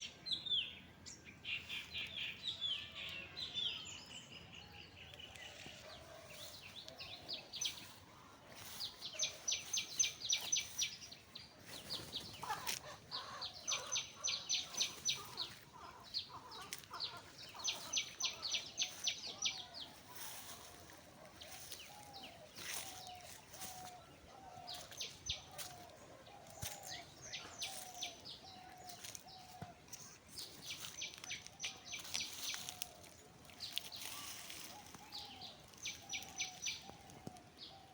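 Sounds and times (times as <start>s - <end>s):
birds trilling: 5.3s - 37.9s.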